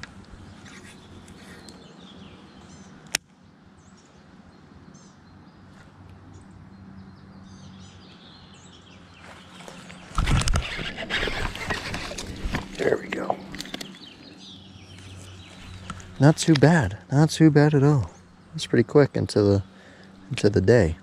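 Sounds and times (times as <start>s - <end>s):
small birds chirping: 0.0s - 21.0s
sharp click: 13.5s - 14.0s.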